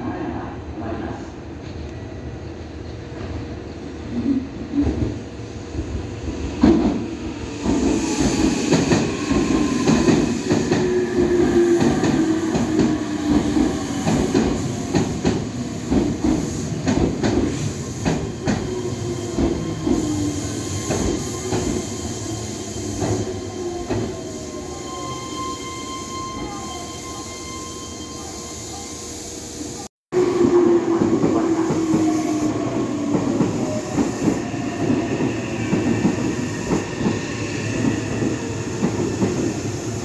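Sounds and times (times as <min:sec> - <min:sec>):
train wheels clacking over rail joints: 0:07.6 - 0:18.8.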